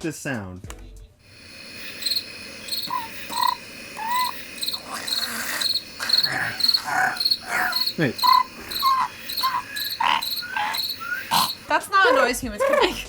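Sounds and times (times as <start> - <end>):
cricket chirping: 1.3 - 13.0
whistle-like tones: 1.4 - 11.8.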